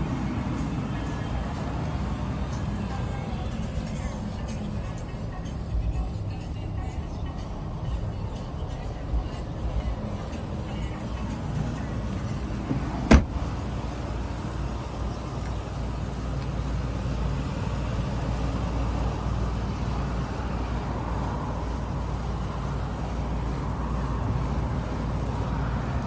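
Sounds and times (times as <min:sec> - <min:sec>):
vehicle engine rumbling: 0:00.0 - 0:26.0.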